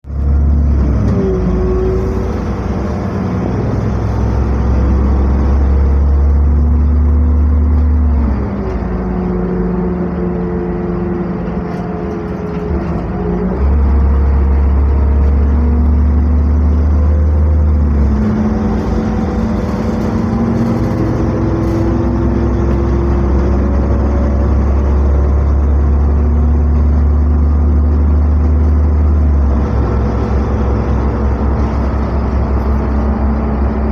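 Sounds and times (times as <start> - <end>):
bus engine drone: 0.0 - 33.9
whining tones: 0.7 - 27.6.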